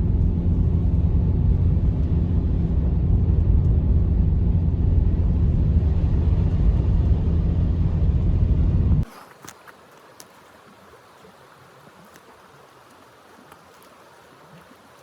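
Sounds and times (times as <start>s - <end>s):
faint clicks: 9.0s - 15.0s.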